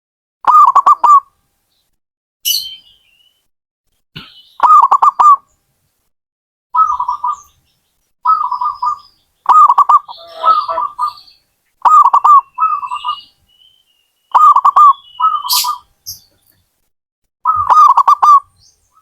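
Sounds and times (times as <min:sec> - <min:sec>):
dove cooing: 0:00.5 - 0:01.3, 0:04.6 - 0:05.4, 0:06.8 - 0:07.5, 0:08.3 - 0:11.2, 0:11.8 - 0:13.2, 0:14.3 - 0:15.8, 0:17.5 - 0:18.5
high bird chirp: 0:02.4 - 0:03.5, 0:04.2 - 0:05.4, 0:06.8 - 0:16.5, 0:17.5 - 0:19.0.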